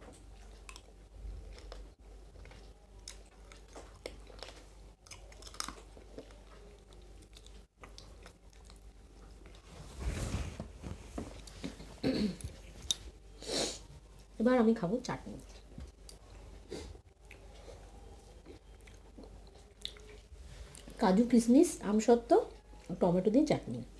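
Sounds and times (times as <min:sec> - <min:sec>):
people chewing and biting: 0:00.0 - 0:09.7, 0:17.1 - 0:20.9.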